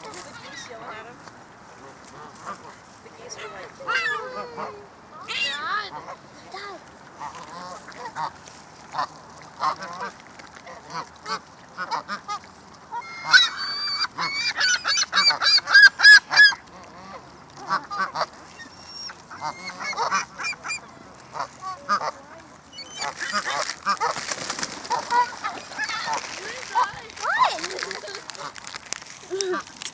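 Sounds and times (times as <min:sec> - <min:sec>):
gulls squawking: 0:03.3 - 0:06.2, 0:12.9 - 0:28.6.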